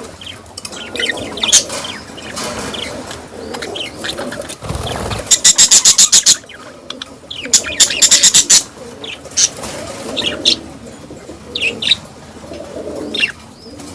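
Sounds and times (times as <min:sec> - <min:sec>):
budgerigars chattering: 0:00.0 - 0:10.6, 0:11.4 - 0:12.1, 0:13.0 - 0:13.8
budgerigar chirps: 0:03.5 - 0:06.5, 0:07.4 - 0:08.7.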